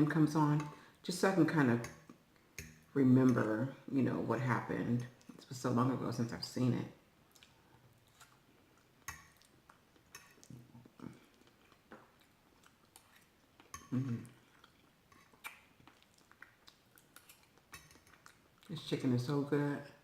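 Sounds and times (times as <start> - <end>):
close chewing and mouth sounds: 7.2 - 18.9.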